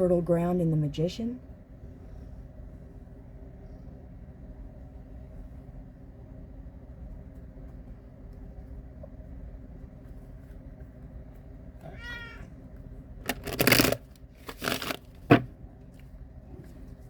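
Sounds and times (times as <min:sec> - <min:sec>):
cat meowing: 0:11.8 - 0:12.6.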